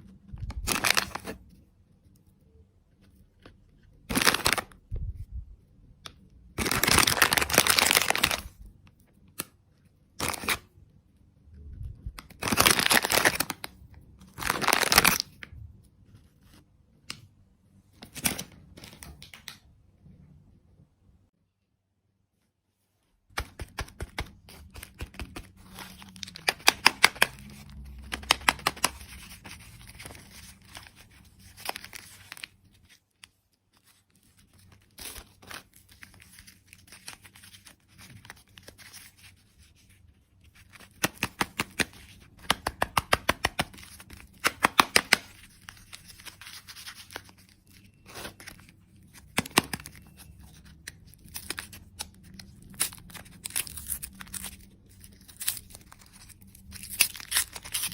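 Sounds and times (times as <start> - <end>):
candy wrapper crinkling: 0.4 - 1.4, 4.1 - 4.8, 6.6 - 8.6, 12.2 - 15.4, 23.9 - 57.9.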